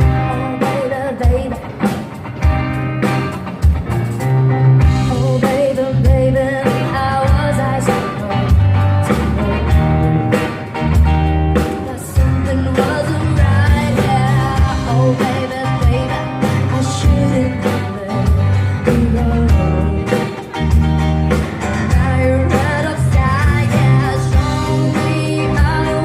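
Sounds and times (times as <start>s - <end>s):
person singing: 0.0s - 1.9s, 4.9s - 10.4s, 11.5s - 20.6s, 21.8s - 26.0s
steady drum beat: 0.0s - 26.0s
loud bass notes: 6.1s - 26.0s.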